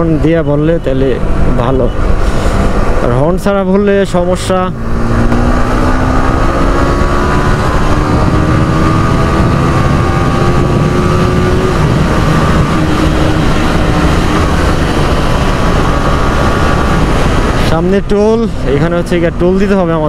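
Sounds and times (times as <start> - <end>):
wind and road noise: 0.0 - 20.0
motorcycle engine running: 4.7 - 17.7.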